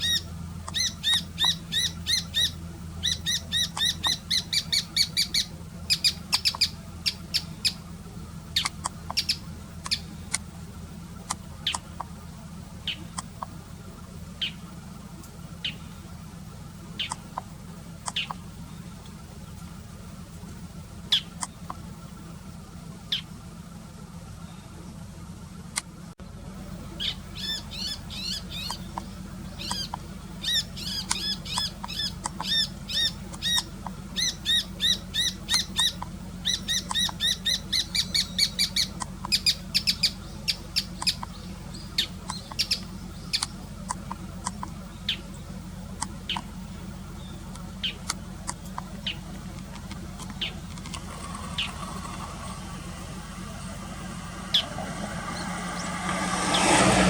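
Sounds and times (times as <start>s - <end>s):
bird chattering: 0.0s - 7.8s, 8.6s - 10.2s, 11.3s - 12.1s, 12.8s - 13.4s, 14.4s - 14.7s, 15.6s - 16.0s, 17.0s - 18.4s, 21.1s - 21.7s, 26.9s - 49.3s, 49.9s - 52.6s
steady low hum: 0.0s - 57.0s.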